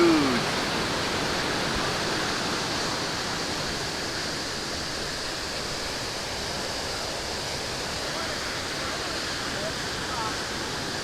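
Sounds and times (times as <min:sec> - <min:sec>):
waterfall roaring: 0:00.0 - 0:06.5.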